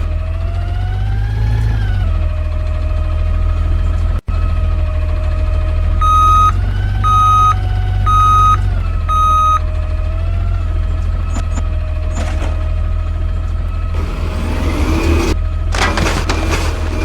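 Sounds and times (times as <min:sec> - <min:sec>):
truck engine running: 0:00.0 - 0:17.0
truck reversing alarm beeps: 0:06.0 - 0:09.9.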